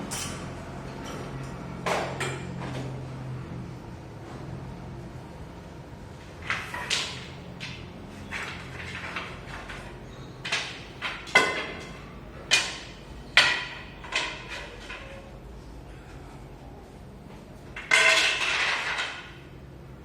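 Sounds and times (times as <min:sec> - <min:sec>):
sharp knocks and clatters ringing: 0:00.0 - 0:02.7, 0:06.5 - 0:15.2, 0:17.8 - 0:19.4.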